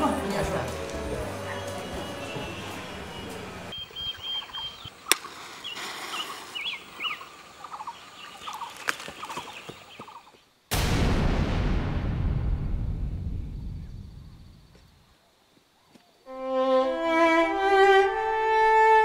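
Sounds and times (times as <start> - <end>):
birds chirping: 0.0 - 10.5.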